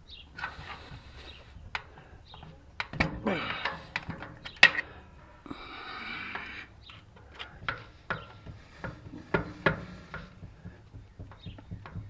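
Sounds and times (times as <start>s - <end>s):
metal tools clinking and knocking: 2.8s - 5.2s.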